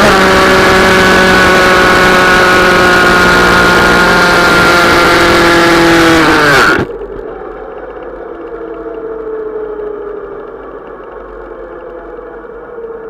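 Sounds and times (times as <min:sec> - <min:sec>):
mini-bike engine revving: 0:00.0 - 0:06.9.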